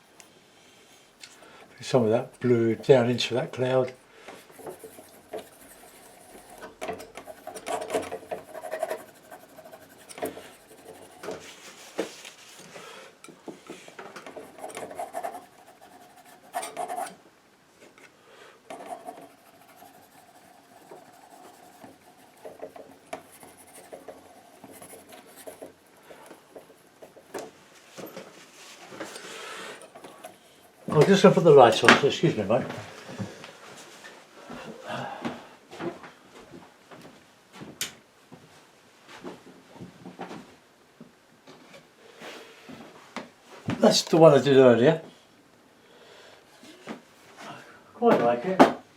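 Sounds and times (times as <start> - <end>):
palette knife scraping paint: 2.6 - 12.6, 14.3 - 17.2, 18.7 - 27.4.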